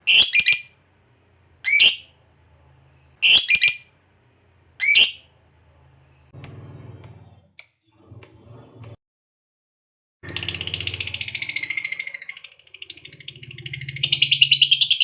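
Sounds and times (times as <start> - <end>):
lovebird chirping: 0.0 - 0.8, 1.6 - 2.1, 3.2 - 3.9, 4.8 - 5.3, 10.3 - 15.0.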